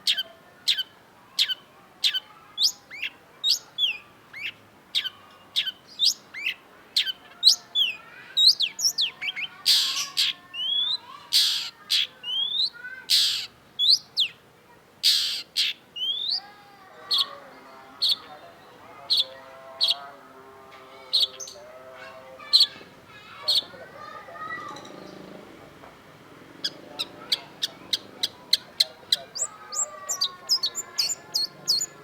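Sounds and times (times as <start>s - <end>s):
harsh rasping bird screeches: 9.7s - 10.3s, 11.4s - 12.1s, 13.1s - 13.5s, 15.0s - 15.5s
bird song with whistled notes: 16.0s - 16.5s.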